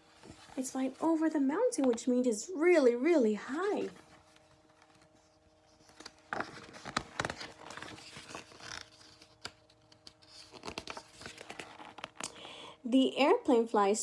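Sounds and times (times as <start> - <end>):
faint electrical hum: 0.0 - 14.0
paper rustling: 3.4 - 12.2.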